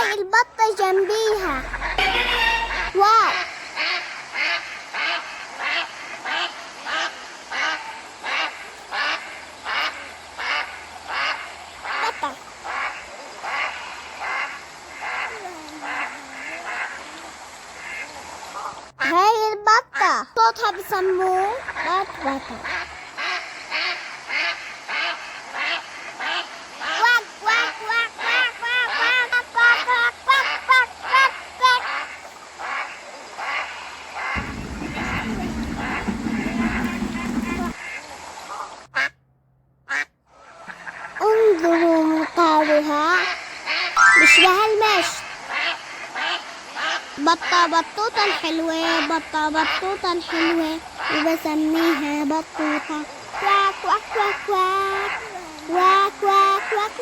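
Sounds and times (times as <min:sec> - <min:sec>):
duck quacking: 0:01.1 - 0:19.2, 0:21.5 - 0:38.0, 0:48.2 - 0:52.0
geese honking: 0:01.1 - 0:19.2, 0:33.5 - 0:38.0, 0:43.7 - 0:52.0.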